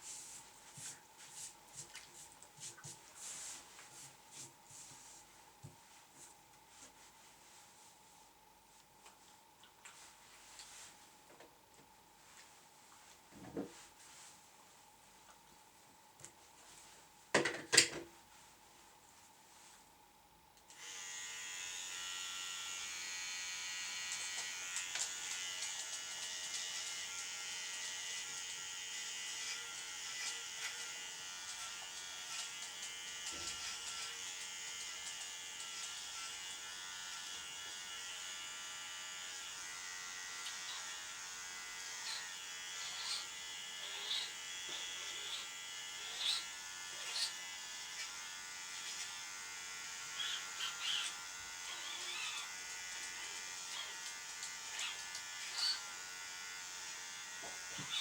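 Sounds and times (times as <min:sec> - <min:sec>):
electric clippers buzzing: 0:20.7 - 0:58.0.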